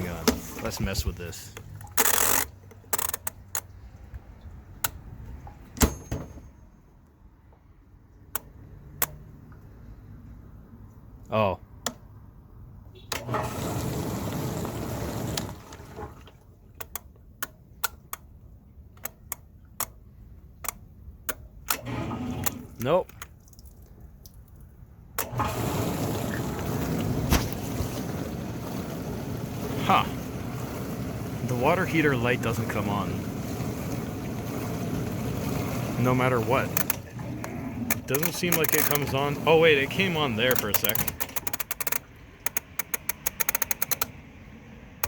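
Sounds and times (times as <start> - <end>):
dishwasher wash noise: 0.0 - 2.0, 13.2 - 16.7, 21.8 - 23.0, 25.2 - 41.4
loud metallic clunk: 5.8 - 6.6
water spraying in tub: 13.3 - 16.4, 25.3 - 41.2
sharp click: 40.5 - 44.2.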